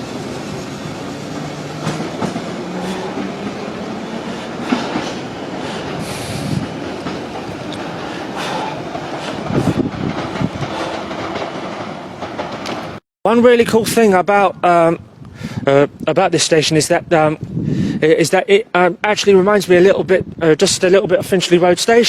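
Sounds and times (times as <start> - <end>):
train motors whining: 0.0 - 13.0
wheels clicking over rail joints: 0.0 - 13.0.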